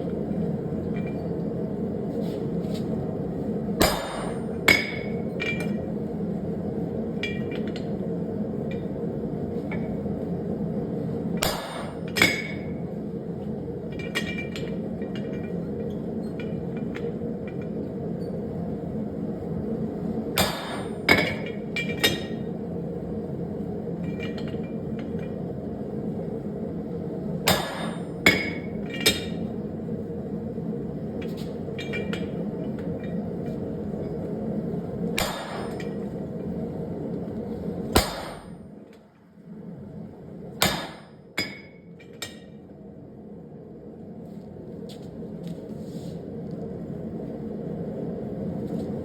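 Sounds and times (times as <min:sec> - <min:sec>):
steady low hum: 0:00.0 - 0:49.0
hammer striking metal: 0:03.8 - 0:05.7, 0:11.4 - 0:12.6, 0:20.4 - 0:22.4, 0:27.5 - 0:29.4, 0:35.2 - 0:36.0, 0:38.0 - 0:38.6, 0:40.6 - 0:42.5.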